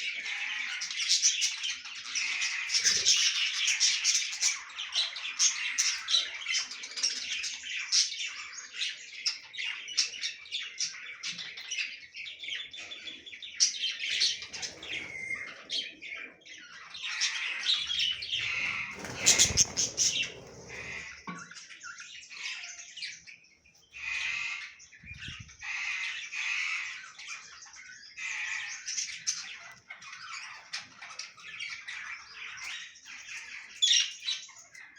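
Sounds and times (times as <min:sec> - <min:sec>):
budgerigars chattering: 0:00.0 - 0:23.2, 0:23.9 - 0:34.9
loud rustling noise: 0:18.3 - 0:21.1.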